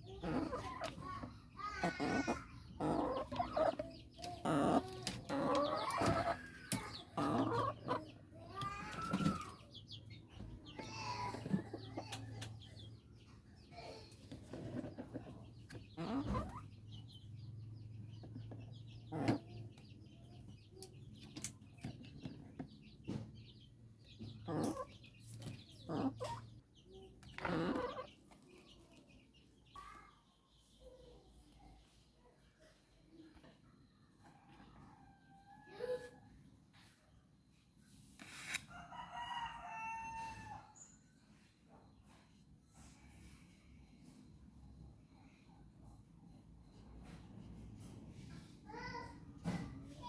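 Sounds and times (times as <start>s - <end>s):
chickens clucking: 0.0s - 30.1s.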